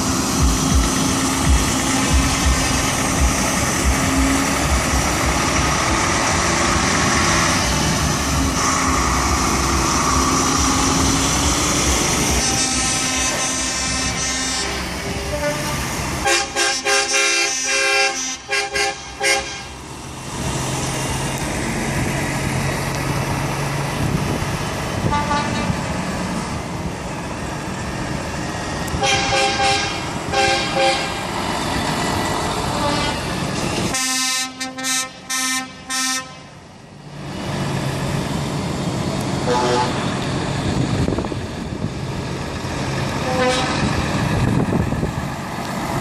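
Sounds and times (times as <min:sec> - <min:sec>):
diesel engines running: 0:00.0 - 0:46.0
truck horn blasts: 0:12.3 - 0:19.8, 0:25.0 - 0:25.8, 0:29.0 - 0:31.2, 0:32.7 - 0:33.3, 0:33.9 - 0:36.6, 0:39.4 - 0:40.1, 0:43.2 - 0:43.9.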